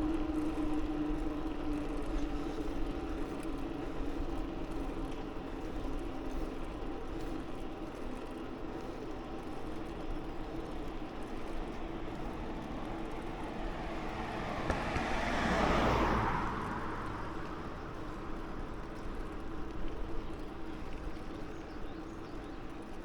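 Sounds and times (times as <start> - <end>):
riding and wind noise: 0.0 - 23.0
vehicle passing by: 11.5 - 19.5.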